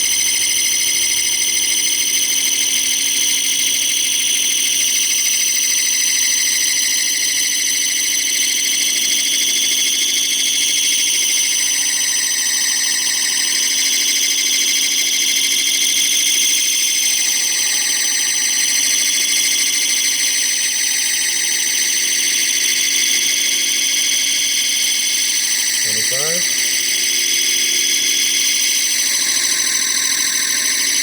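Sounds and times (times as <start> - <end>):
metal lathe whining: 11.4 - 31.0.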